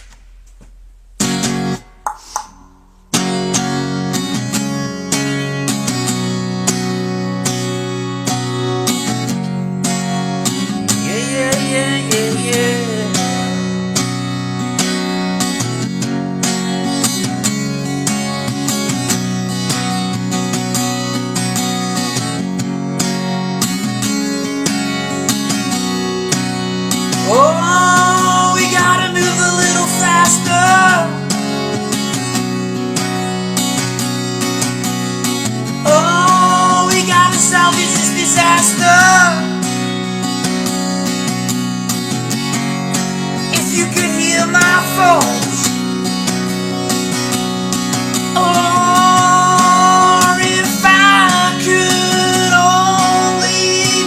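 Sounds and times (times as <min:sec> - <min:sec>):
acoustic guitar strumming: 0:00.0 - 0:54.0
person singing: 0:10.9 - 0:13.5, 0:27.2 - 0:31.3, 0:35.8 - 0:39.6, 0:43.5 - 0:45.7, 0:48.3 - 0:54.0.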